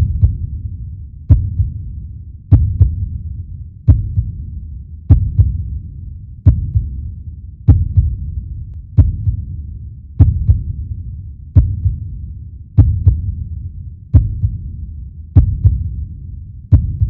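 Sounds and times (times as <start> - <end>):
heartbeat double thump: 0.0 - 0.5, 1.3 - 1.8, 2.5 - 3.0, 3.9 - 4.4, 5.1 - 5.6, 6.5 - 6.9, 7.7 - 8.2, 9.0 - 9.5, 10.2 - 10.7, 11.6 - 12.0, 12.8 - 13.3, 14.1 - 14.7, 15.4 - 15.9, 16.7 - 17.0
continuous low rumble: 0.0 - 17.0.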